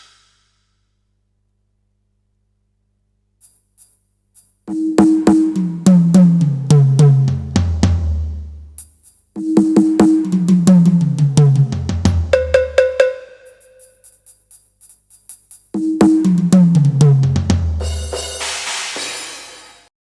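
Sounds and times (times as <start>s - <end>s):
tom drum fills: 4.7s - 8.8s, 9.4s - 13.7s, 15.8s - 19.9s
quick higher drum hits: 9.5s - 13.6s.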